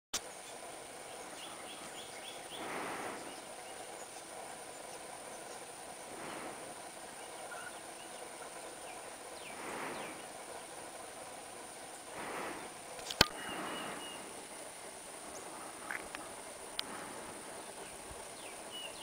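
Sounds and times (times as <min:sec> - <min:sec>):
insect hiss: 0:00.2 - 0:19.0
bird calling: 0:00.3 - 0:19.0
rushing noise: 0:05.8 - 0:18.4.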